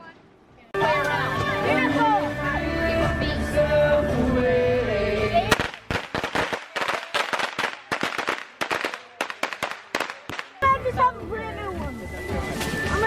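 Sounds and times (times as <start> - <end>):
background music: 0.8 - 5.7
firecrackers popping: 5.5 - 10.7.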